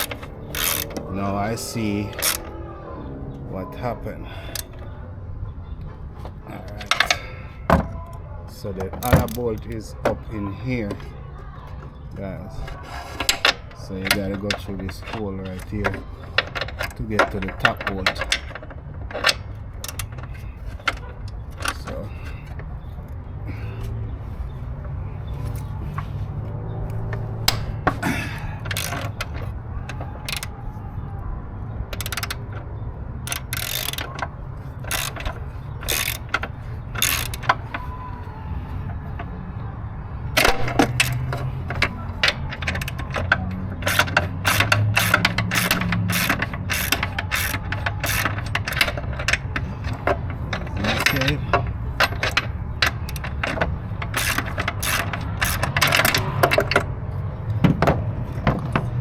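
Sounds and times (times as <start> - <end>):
ratchet wrench clicking: 0.0 - 2.5, 13.3 - 20.5, 26.8 - 30.6, 31.9 - 32.6, 33.2 - 37.9, 40.4 - 56.9.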